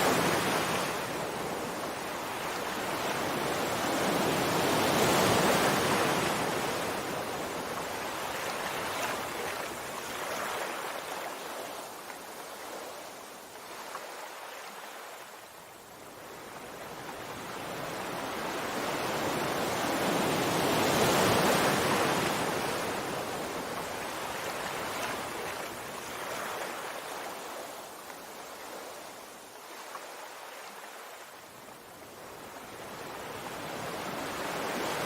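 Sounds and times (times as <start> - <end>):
sea waves washing on shore: 0.0 - 35.0.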